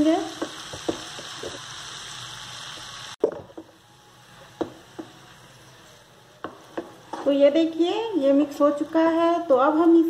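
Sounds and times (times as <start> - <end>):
oil sizzling: 0.0 - 10.0
spatula stirring and scraping pan: 4.3 - 7.8.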